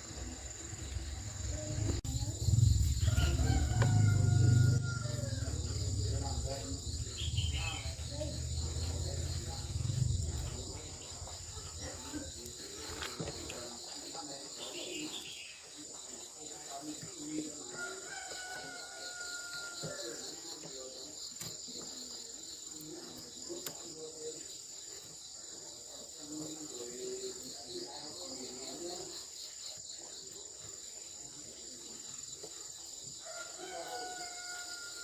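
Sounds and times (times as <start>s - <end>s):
faint background activity: 0.0s - 35.0s
insects chirring: 0.0s - 35.0s.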